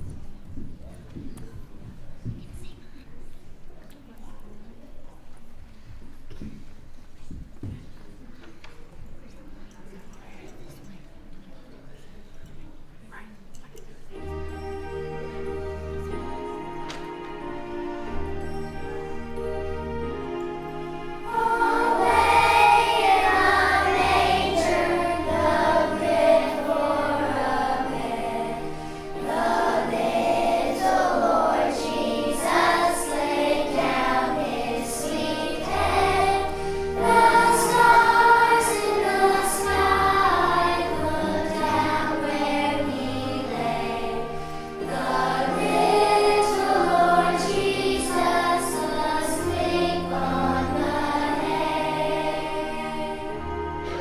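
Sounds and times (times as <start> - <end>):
children's choir singing: 14.1 - 54.0
instrumental accompaniment: 14.1 - 54.0.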